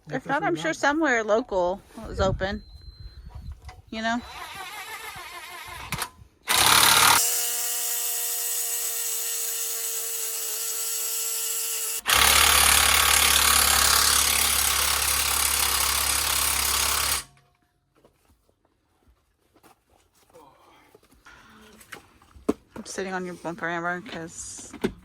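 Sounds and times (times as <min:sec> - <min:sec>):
impact wrench hammering: 0:06.5 - 0:07.4, 0:11.2 - 0:17.4.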